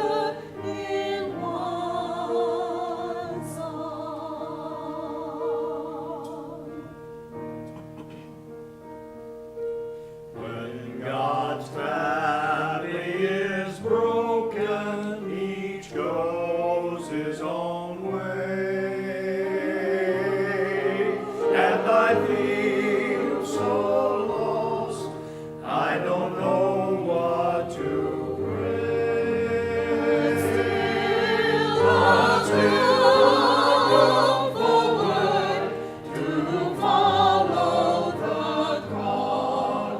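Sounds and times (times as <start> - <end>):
church choir singing: 0.0 - 8.2, 10.0 - 39.9
instrumental accompaniment: 18.1 - 39.9.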